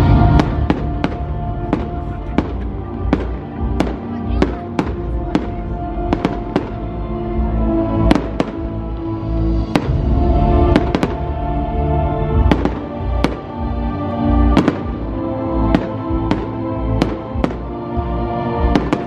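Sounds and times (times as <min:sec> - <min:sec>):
fireworks bangs: 0:00.0 - 0:06.8, 0:08.0 - 0:08.7, 0:09.6 - 0:11.4, 0:12.4 - 0:13.6, 0:14.5 - 0:15.0, 0:15.7 - 0:17.6, 0:18.6 - 0:19.0
music with sustained chords: 0:00.0 - 0:19.0.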